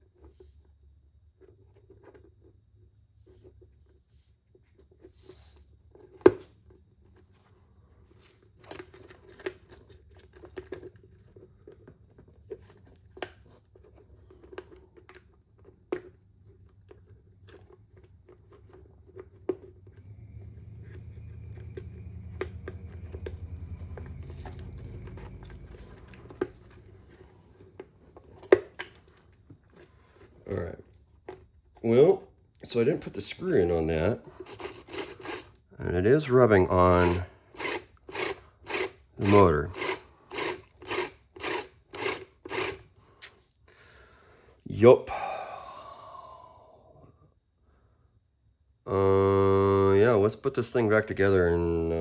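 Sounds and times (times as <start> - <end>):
low hum: 19.8 - 28.2.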